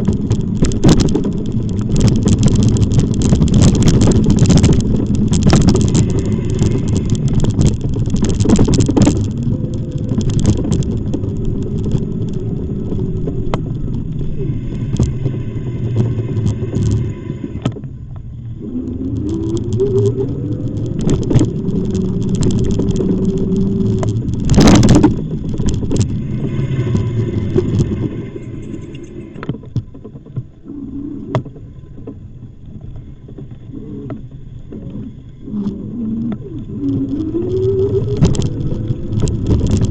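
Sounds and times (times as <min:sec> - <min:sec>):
e-bike riding rumble: 0:00.0 - 0:39.9
loud rush: 0:24.5 - 0:29.4.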